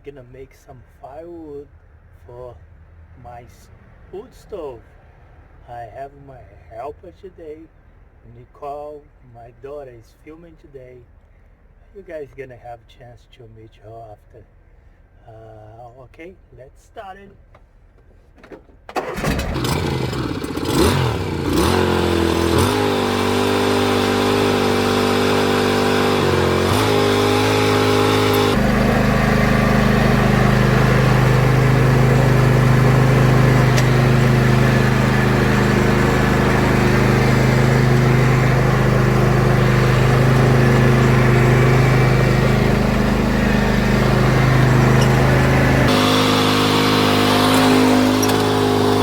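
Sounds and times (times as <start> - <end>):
engine running: 18.9 - 49.0.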